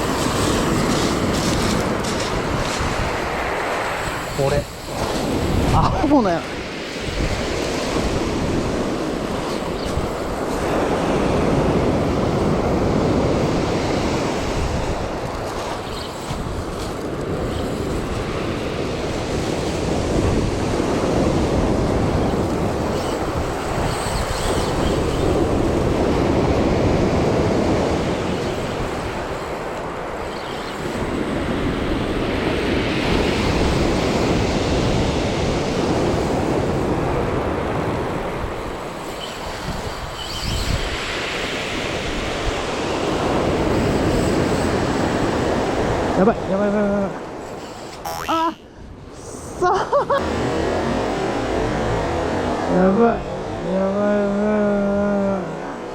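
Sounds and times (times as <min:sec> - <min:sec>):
surf breaking on beach: 0:00.0 - 0:39.8
wind on microphone: 0:00.0 - 0:55.9.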